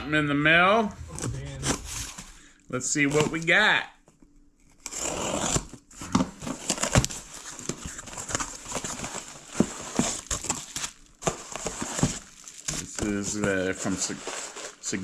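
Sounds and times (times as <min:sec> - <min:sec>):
packaging crinkling and rustling: 0:05.5 - 0:15.0.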